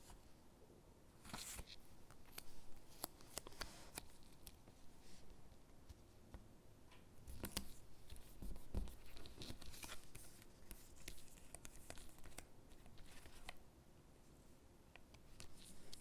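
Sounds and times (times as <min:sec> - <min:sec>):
paper rustling and crinkling: 0:01.2 - 0:05.2, 0:07.3 - 0:13.6.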